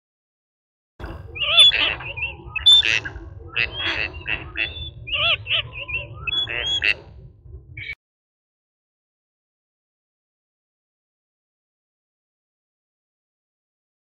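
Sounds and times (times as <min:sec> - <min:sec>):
birds calling: 0:01.0 - 0:07.1
low background rumble: 0:01.0 - 0:08.0.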